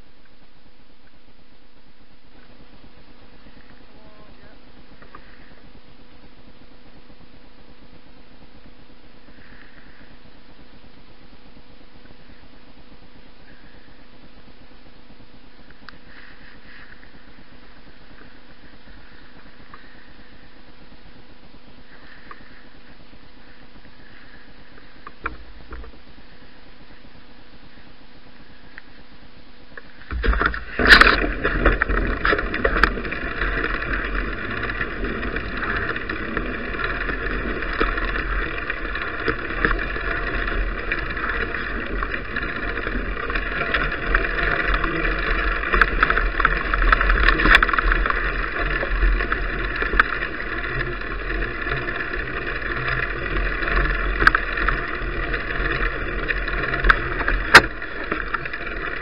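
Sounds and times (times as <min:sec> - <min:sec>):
bicycle tyres rumbling: 0:00.0 - 0:59.0
sharp knocks and rattles: 0:30.0 - 0:59.0.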